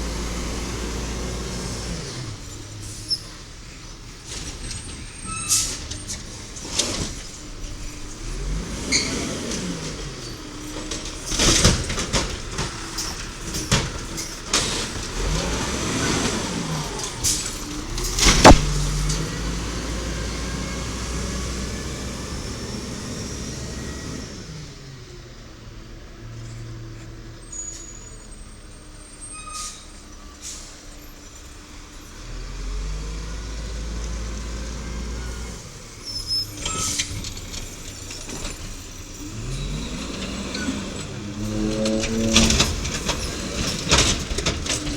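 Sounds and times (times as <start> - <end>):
truck engine revving: 0.0 - 3.1, 6.3 - 25.7, 32.1 - 44.9
metal clanks and knocks: 16.9 - 19.3, 40.6 - 44.9
loud bang: 18.2 - 19.0.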